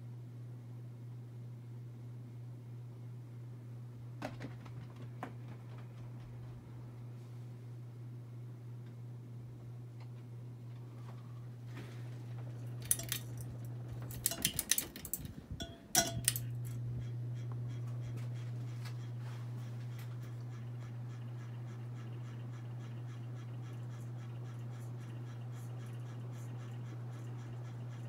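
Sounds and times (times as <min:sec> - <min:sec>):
ceiling fan motor humming: 0:00.0 - 0:28.0
sharp clicks and rattles: 0:12.8 - 0:16.8.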